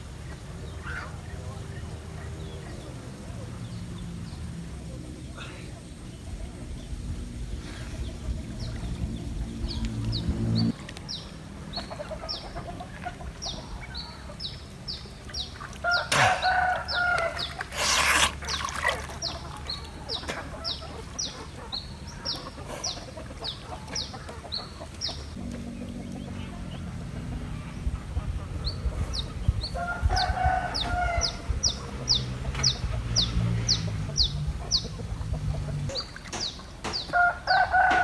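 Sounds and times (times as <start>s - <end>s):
low motor hum: 6.0s - 17.6s, 24.6s - 36.2s
rooster crowing: 15.9s - 17.6s, 37.1s - 38.0s.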